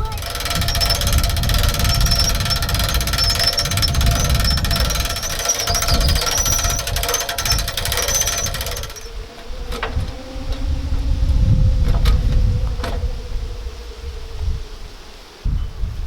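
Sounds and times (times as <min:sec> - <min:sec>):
sharp clicks: 0:00.0 - 0:09.1
machine hammering rattle with whine: 0:00.0 - 0:10.7.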